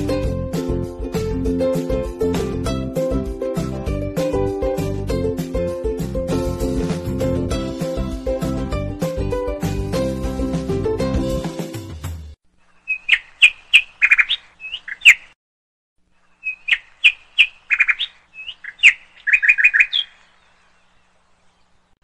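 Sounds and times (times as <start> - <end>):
background music: 0.0 - 12.4
songbird chirping and whistling: 12.7 - 15.4, 16.3 - 21.8.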